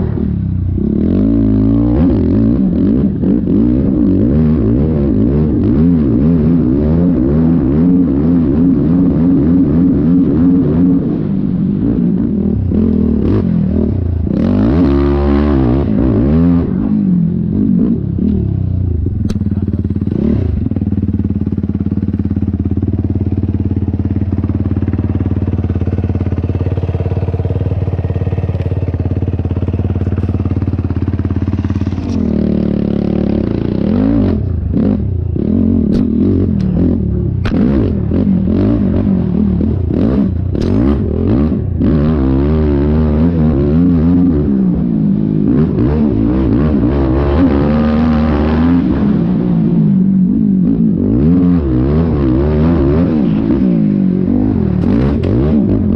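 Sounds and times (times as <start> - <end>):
quad bike engine revving: 0.0 - 55.9.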